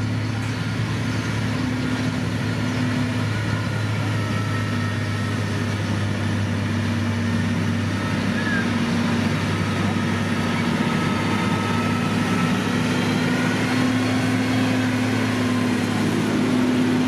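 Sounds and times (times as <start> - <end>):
heavy diesel engine droning: 0.0 - 17.0.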